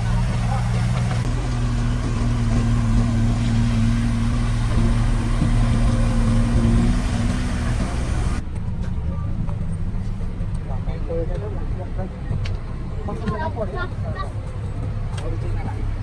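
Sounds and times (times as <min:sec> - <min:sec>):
diesel engine running: 0:00.0 - 0:09.1.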